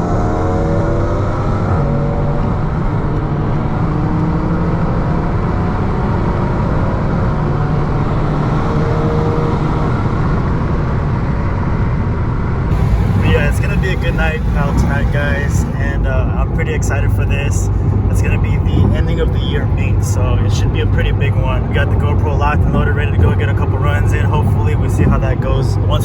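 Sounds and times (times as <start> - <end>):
road noise: 12.4 - 26.0
car engine: 12.7 - 26.0.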